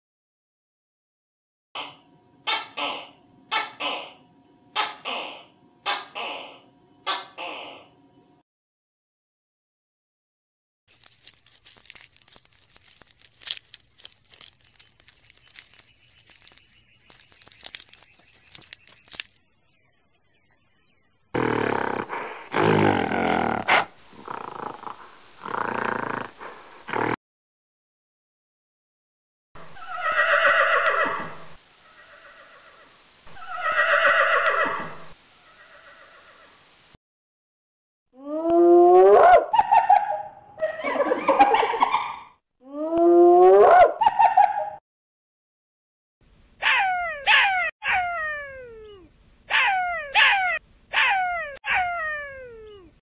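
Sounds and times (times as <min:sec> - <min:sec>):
irregular crackling clicks: 0:10.9 - 0:19.4
horse whinnying: 0:29.8 - 0:31.4, 0:33.4 - 0:35.0.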